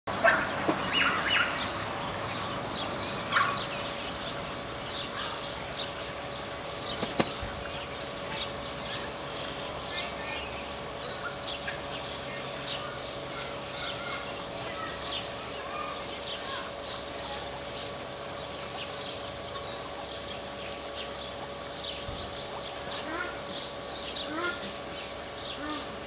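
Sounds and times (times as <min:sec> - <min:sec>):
birds chirping and calling: 0:00.1 - 0:18.0, 0:18.7 - 0:26.0
sharp click: 0:06.9 - 0:07.5.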